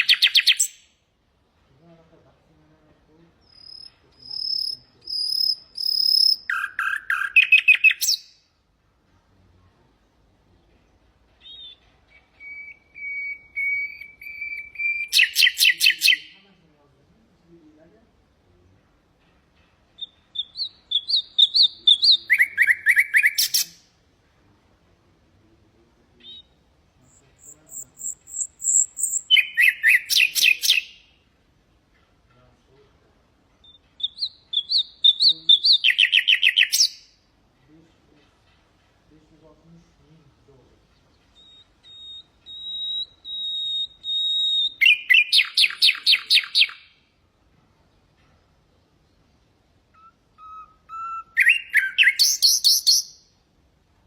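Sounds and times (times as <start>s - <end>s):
nightingale singing: 0.0s - 1.0s, 3.4s - 8.6s, 10.9s - 16.5s, 19.2s - 24.0s, 26.1s - 31.3s, 33.5s - 37.3s, 40.6s - 47.1s, 47.8s - 53.4s.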